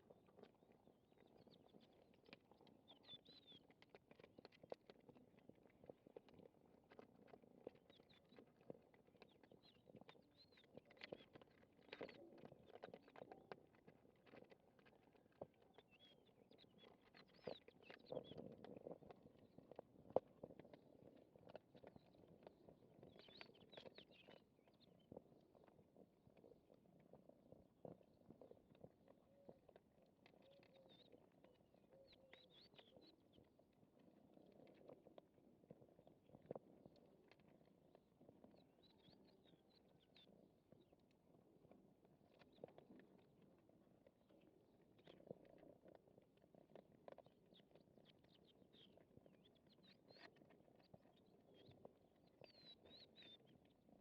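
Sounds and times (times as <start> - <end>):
cats chewing food: 0.0 - 54.0
cats eating clicks: 0.1 - 24.5
small birds chirping: 30.4 - 33.4, 47.5 - 53.6.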